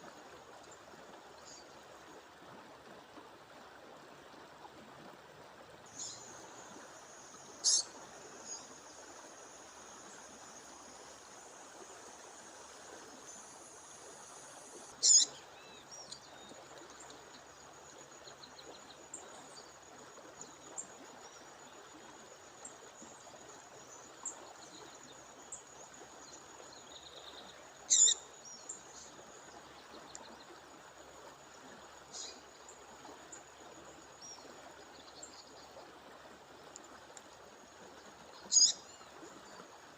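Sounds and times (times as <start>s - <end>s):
songbird high calls: 7.6s - 8.7s, 15.0s - 16.2s, 27.9s - 28.2s, 38.4s - 39.0s.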